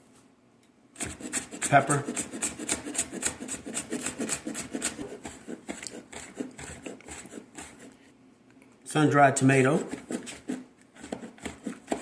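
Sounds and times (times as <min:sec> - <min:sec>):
knife chopping on cutting board: 0:01.0 - 0:07.9, 0:09.8 - 0:12.0.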